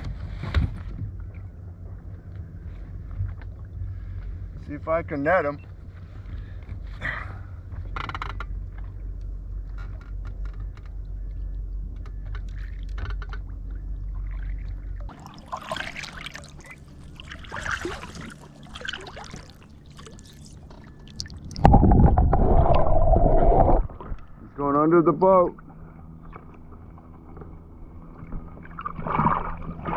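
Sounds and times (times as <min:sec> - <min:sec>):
steady low rumble: 0:00.0 - 0:29.9
water splashing: 0:14.1 - 0:24.4, 0:28.4 - 0:29.9.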